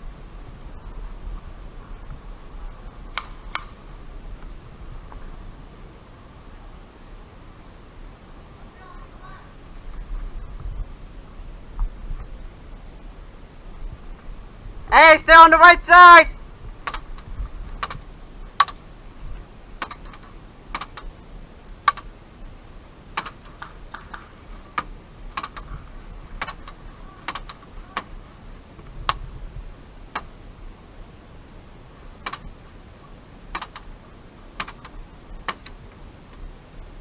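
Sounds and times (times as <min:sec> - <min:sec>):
airsoft gun shots clicking: 0:16.8 - 0:17.2.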